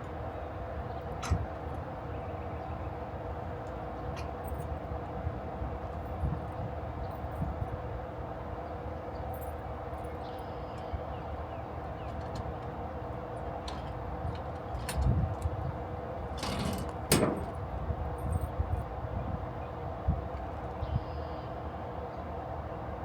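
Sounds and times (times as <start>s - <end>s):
clicks and knocks: 16.4s - 17.6s.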